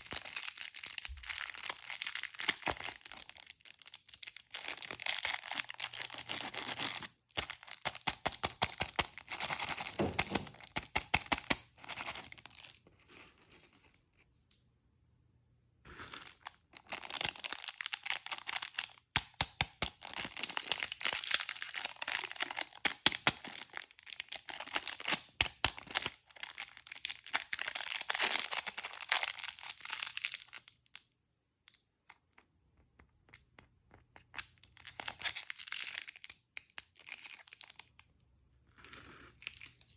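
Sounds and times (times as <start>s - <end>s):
plastic wrappers crinkling: 0.0s - 10.8s, 16.2s - 19.1s, 20.0s - 30.8s, 34.3s - 37.9s.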